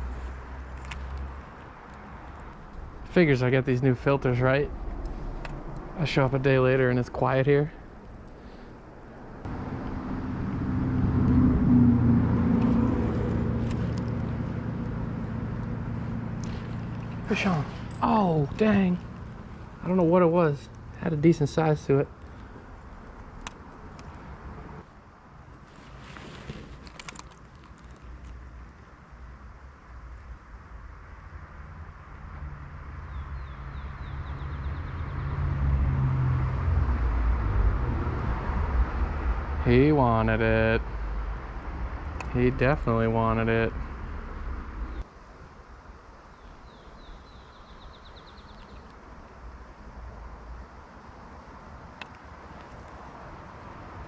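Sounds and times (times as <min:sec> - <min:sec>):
vehicle engine running: 0:02.1 - 0:22.8.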